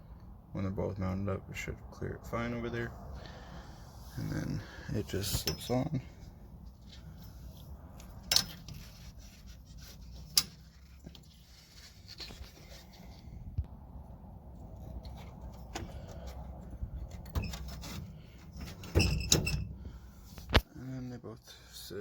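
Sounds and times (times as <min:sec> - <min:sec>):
metal brackets clinking: 0:05.2 - 0:06.0, 0:08.2 - 0:08.8.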